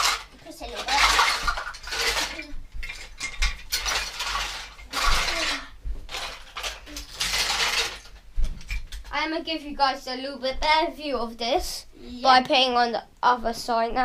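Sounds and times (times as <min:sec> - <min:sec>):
toy train track pieces clattering: 0:00.0 - 0:09.1.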